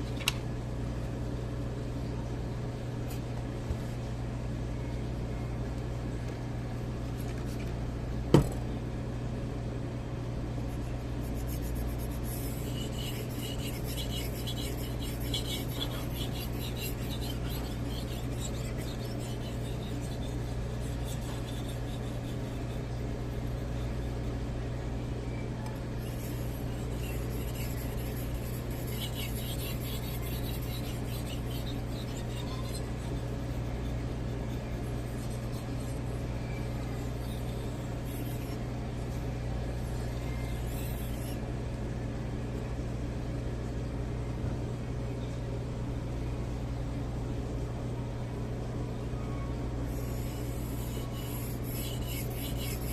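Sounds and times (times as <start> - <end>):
knife scraping on whetstone: 10.8 - 22.8, 26.0 - 34.0, 36.8 - 38.6, 39.9 - 41.4, 50.0 - 52.9.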